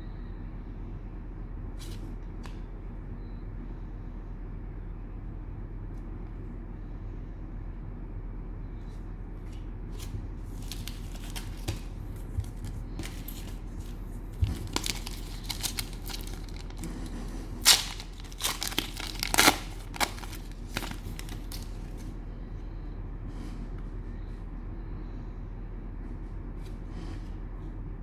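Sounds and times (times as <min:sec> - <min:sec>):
cellophane tearing and crinkling: 0:10.0 - 0:22.0.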